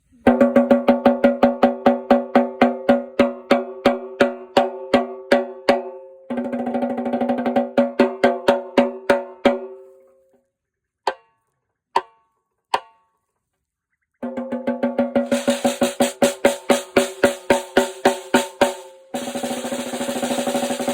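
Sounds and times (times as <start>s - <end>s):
snare drum roll: 14.2s - 20.9s
snare drum strokes: 14.2s - 20.9s.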